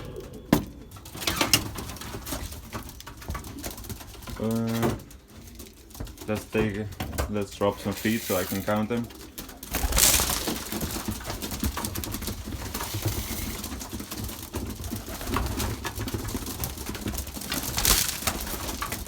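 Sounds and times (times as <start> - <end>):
pigeons cooing: 0.0 - 6.4
pigeons pecking clicks: 0.0 - 19.0
grain rattling down: 5.4 - 19.0.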